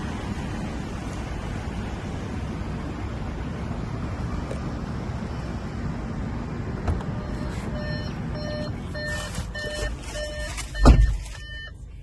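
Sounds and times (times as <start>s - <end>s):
engine and road rumble: 0.0s - 12.0s
car warning beeps: 7.0s - 12.0s
loud thump: 10.8s - 11.2s.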